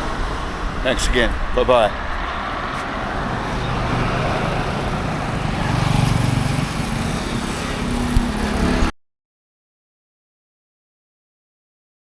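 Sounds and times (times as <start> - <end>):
passing motor vehicles hum: 0.0 - 8.9.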